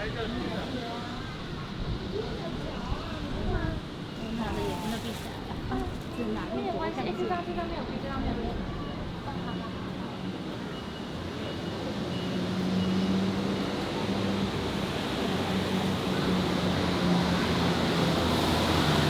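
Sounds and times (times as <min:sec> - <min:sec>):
road noise: 0:00.0 - 0:19.0
faint high beep: 0:08.6 - 0:13.8.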